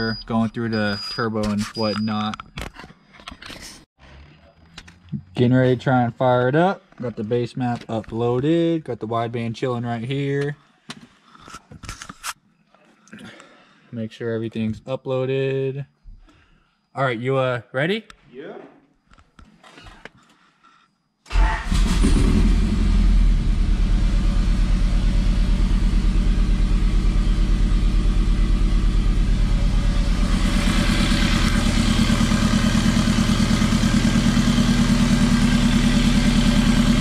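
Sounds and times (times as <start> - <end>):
car engine starting and idling: 21.3 - 37.0.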